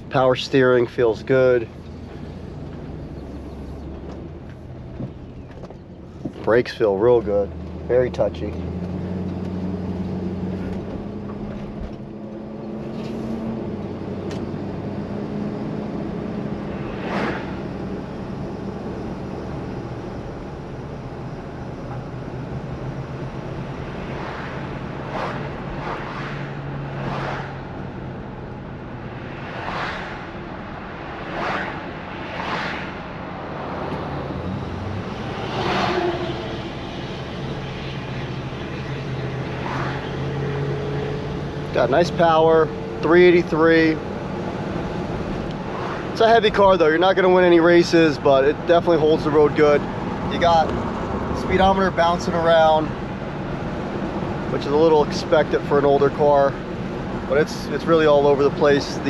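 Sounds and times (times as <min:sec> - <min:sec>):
car engine droning inside cabin: 0:00.0 - 0:29.6, 0:33.0 - 0:59.0.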